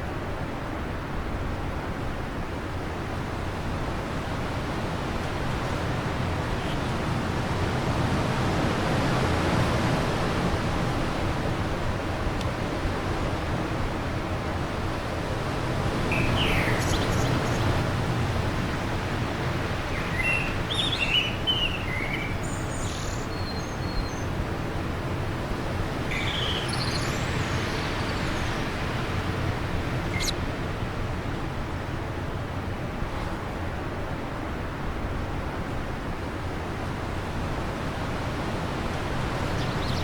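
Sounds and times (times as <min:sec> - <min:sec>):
small birds chirping: 0:05.8 - 0:07.2, 0:16.0 - 0:30.4, 0:39.3 - 0:40.0.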